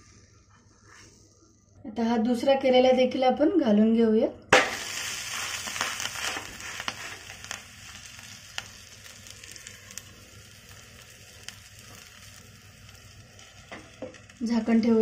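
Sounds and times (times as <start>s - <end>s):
dough sizzling in oil: 4.5s - 15.0s
oil crackles: 4.6s - 15.0s.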